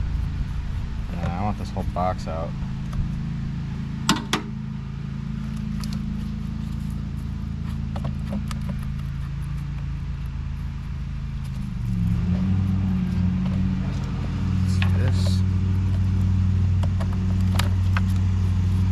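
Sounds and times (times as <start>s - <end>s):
lawn mower engine running: 0.0s - 18.9s
sharp clicks and light knocks: 4.1s - 4.5s, 7.6s - 9.9s.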